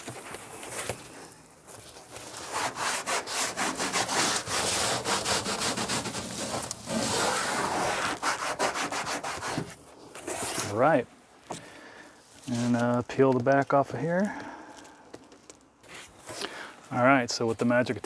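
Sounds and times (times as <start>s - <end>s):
cloth scrubbing textured surface: 2.2s - 11.0s.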